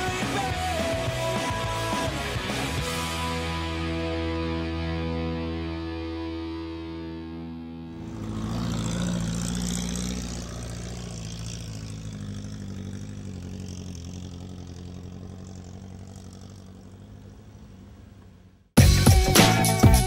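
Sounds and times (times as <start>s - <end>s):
vehicle engine under load: 7.9s - 18.8s.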